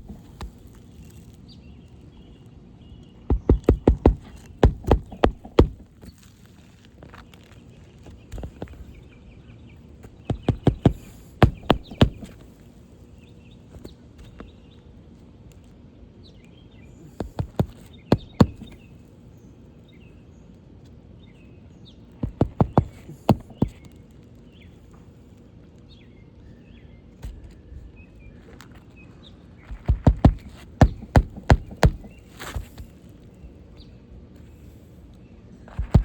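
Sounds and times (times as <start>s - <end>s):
hammer driving nails: 3.3s - 5.9s, 10.3s - 12.4s, 17.2s - 18.8s, 22.2s - 23.7s, 29.9s - 32.8s.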